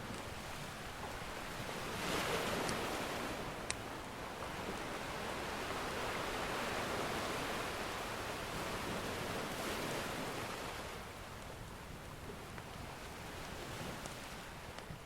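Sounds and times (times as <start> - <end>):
ocean surf washing in: 0.0 - 11.2.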